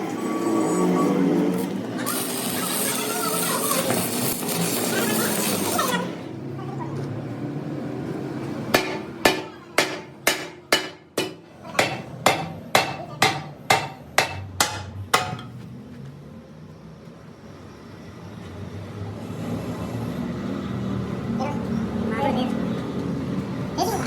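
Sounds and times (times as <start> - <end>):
hammer striking steel: 8.7 - 15.6.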